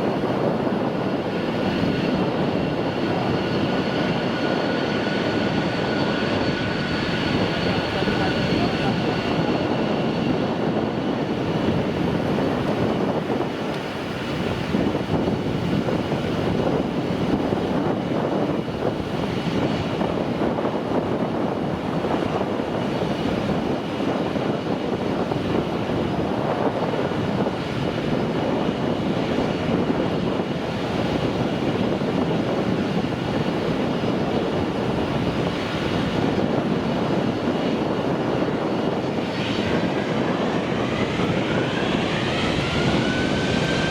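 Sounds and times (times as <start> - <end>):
jet engines rumbling: 0.0 - 43.9
faint high whine: 38.5 - 43.9.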